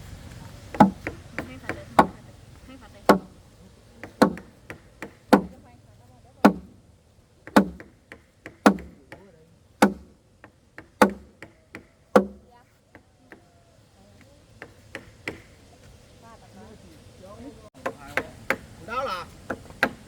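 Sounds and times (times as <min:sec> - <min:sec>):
tool striking wood: 0:00.7 - 0:02.2, 0:03.1 - 0:03.4, 0:04.0 - 0:05.6, 0:06.4 - 0:06.8, 0:07.4 - 0:12.5, 0:14.6 - 0:15.6, 0:17.8 - 0:18.8, 0:19.4 - 0:20.0.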